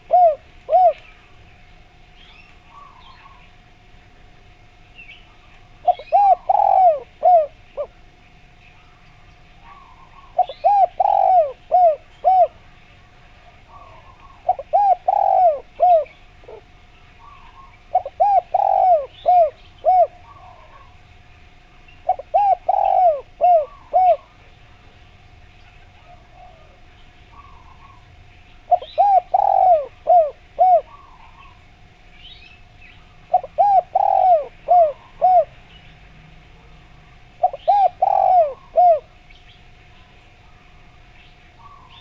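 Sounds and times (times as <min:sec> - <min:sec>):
dove cooing: 0:00.0 - 0:01.5, 0:02.2 - 0:03.6, 0:05.3 - 0:08.0, 0:09.6 - 0:21.1, 0:22.0 - 0:24.9, 0:25.6 - 0:31.8, 0:33.2 - 0:35.7, 0:36.6 - 0:39.3, 0:41.6 - 0:42.0
small birds chirping: 0:00.0 - 0:03.7, 0:04.9 - 0:42.0.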